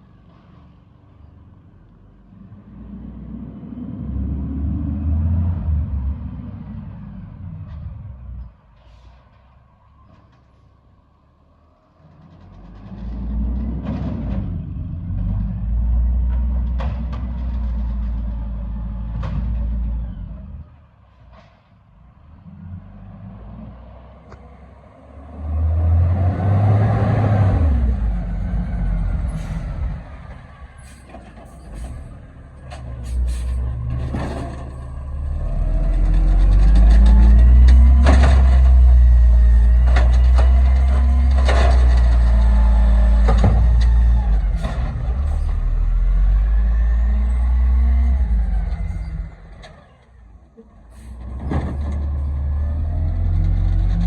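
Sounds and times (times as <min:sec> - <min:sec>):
garbage truck engine revving: 0:12.3 - 0:20.8, 0:22.2 - 0:54.0
sharp knocks and clanks: 0:36.0 - 0:45.6.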